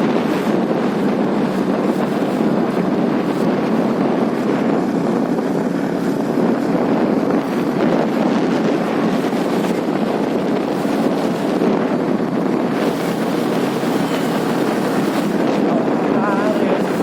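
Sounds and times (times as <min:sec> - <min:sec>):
wind buffeting microphone: 0:00.0 - 0:17.0
road noise: 0:08.7 - 0:17.0.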